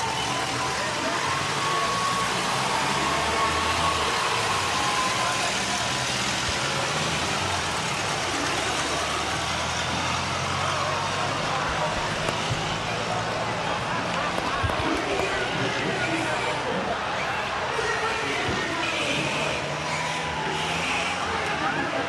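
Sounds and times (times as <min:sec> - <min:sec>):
race car engines running: 0:00.0 - 0:22.0.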